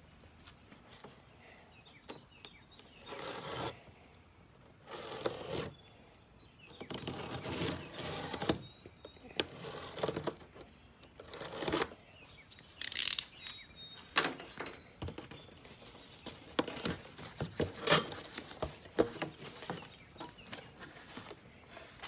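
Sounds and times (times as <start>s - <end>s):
sharp knocks and scrapes: 14.7s - 22.0s.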